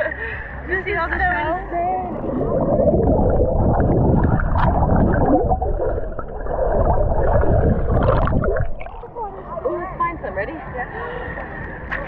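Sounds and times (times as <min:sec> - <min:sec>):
heavy low rumble: 0:01.2 - 0:09.5
muffled underwater rushing water: 0:01.8 - 0:09.4.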